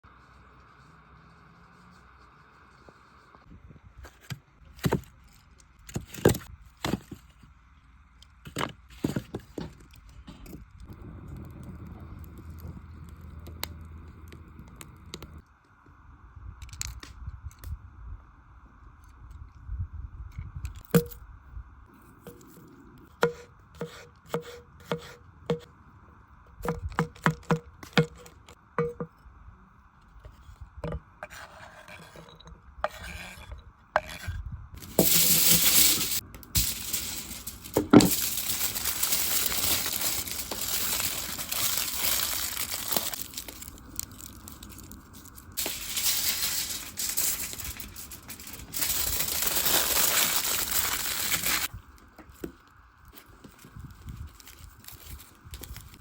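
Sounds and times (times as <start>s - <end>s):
aluminium foil crinkling: 34.8s - 51.7s, 53.0s - 56.0s.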